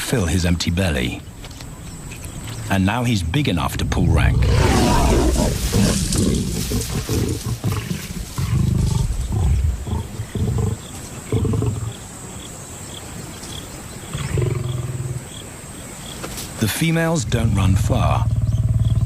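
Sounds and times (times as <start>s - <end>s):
lions growling: 3.4s - 12.1s, 14.0s - 15.3s.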